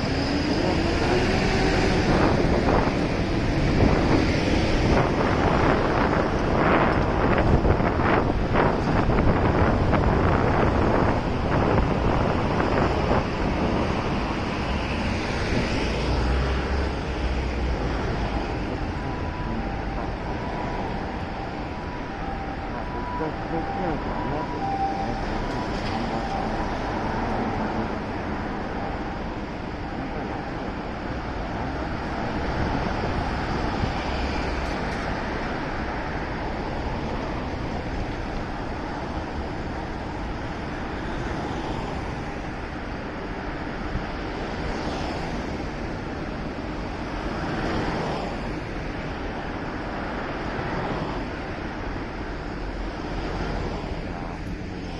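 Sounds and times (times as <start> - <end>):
wind rushing: 0.0 - 25.5
road and traffic noise: 0.0 - 54.9
wind rushing over microphone: 0.0 - 54.9.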